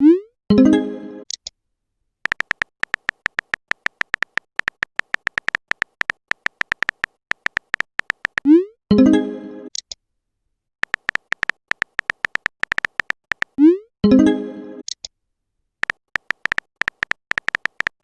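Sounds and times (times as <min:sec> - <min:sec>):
rapid keyboard typing clicks: 0:02.2 - 0:08.5, 0:10.8 - 0:13.6, 0:15.8 - 0:18.0.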